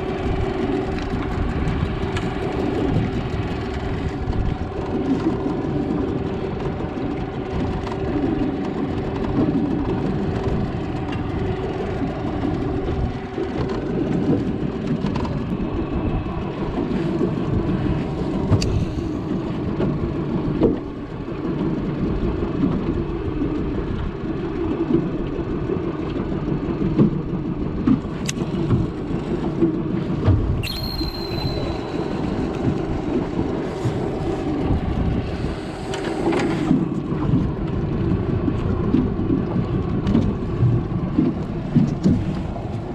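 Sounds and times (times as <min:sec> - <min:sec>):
engine running steadily: 0:00.0 - 0:42.9.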